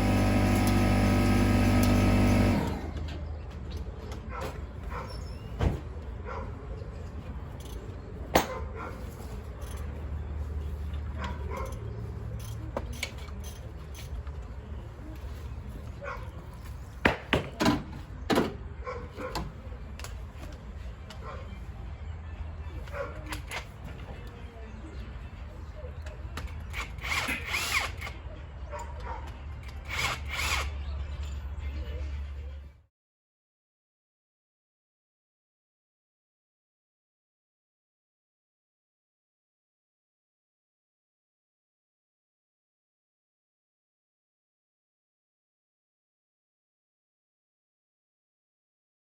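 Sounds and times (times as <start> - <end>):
power tool running: 0.0 - 3.2, 29.9 - 30.7.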